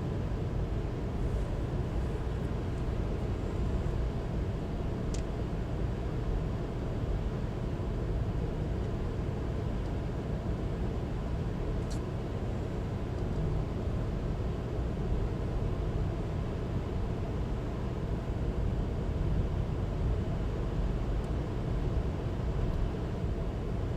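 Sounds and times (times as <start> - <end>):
faint click: 11.8 - 12.1.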